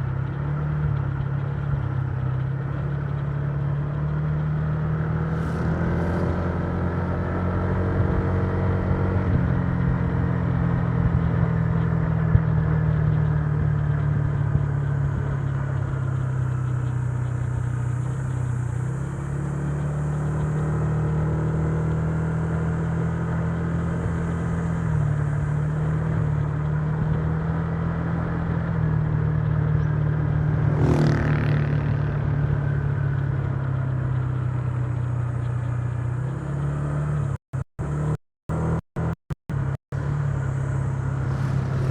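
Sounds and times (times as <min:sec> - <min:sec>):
road and wind noise: 0:00.0 - 0:41.9
scooter engine cruising: 0:00.0 - 0:41.9
brief whoosh: 0:05.2 - 0:08.1, 0:40.7 - 0:41.9.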